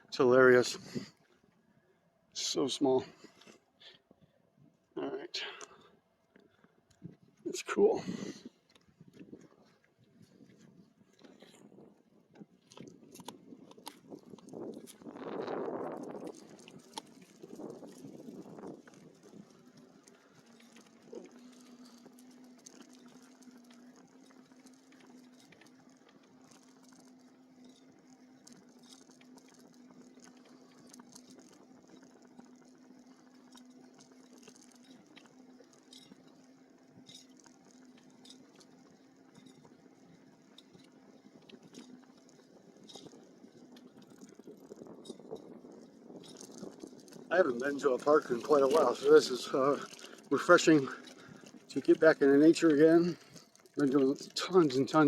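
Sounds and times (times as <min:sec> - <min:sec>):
small electric motor humming: 0:05.4 - 0:55.0.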